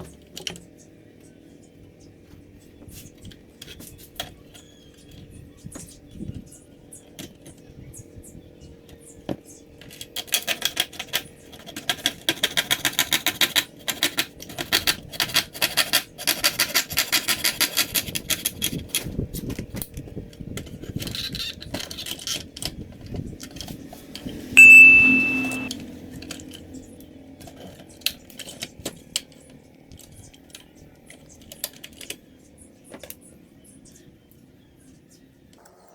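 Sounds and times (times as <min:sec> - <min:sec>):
loud electronic beep: 0:24.6 - 0:25.7.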